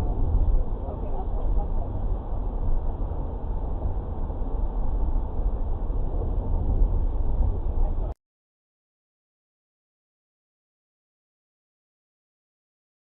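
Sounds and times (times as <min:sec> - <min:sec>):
vehicle driving rumble: 0:00.0 - 0:08.2.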